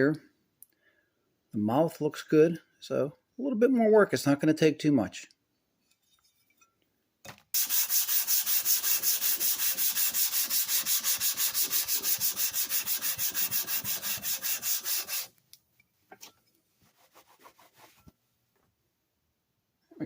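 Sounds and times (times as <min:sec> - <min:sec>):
metal scraping on sandpaper: 0:07.6 - 0:15.3, 0:16.9 - 0:18.1.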